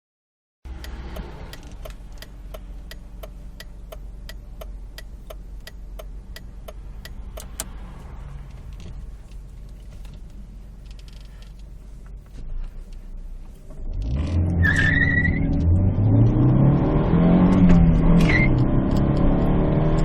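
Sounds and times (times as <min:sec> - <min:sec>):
car engine humming: 0:00.7 - 0:20.0
sharp regular ticking: 0:00.8 - 0:07.8.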